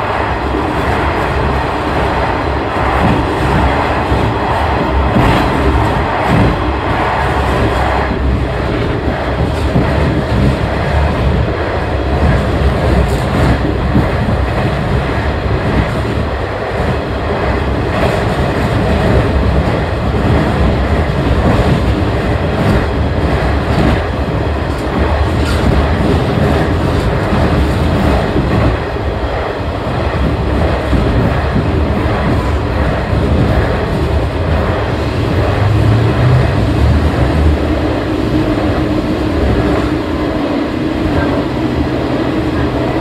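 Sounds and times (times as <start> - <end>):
rail clicks: 0.0 - 43.0
railcar engine and wheels rumbling: 0.0 - 43.0.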